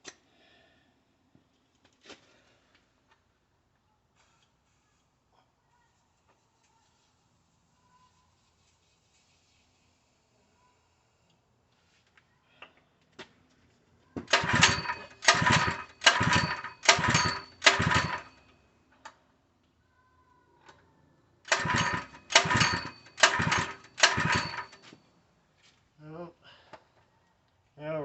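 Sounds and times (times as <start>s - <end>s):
pull-starter whirring: 14.2s - 18.4s, 21.5s - 24.9s.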